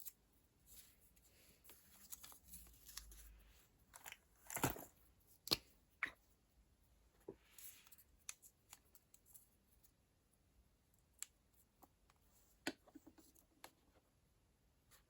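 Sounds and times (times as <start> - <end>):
soft paper rustle: 0.6 - 5.0.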